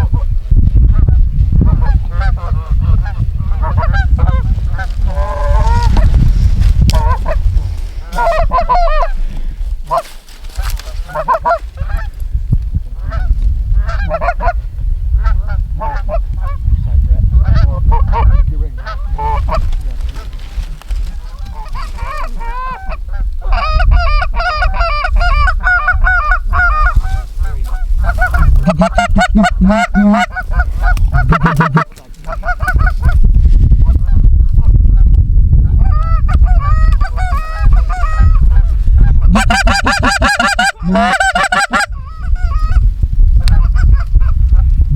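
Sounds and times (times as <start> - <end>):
low rumble: 0.0 - 39.7
geese honking: 1.7 - 6.1, 7.0 - 7.4, 8.0 - 12.2, 13.0 - 14.6, 21.1 - 33.2, 35.8 - 42.8.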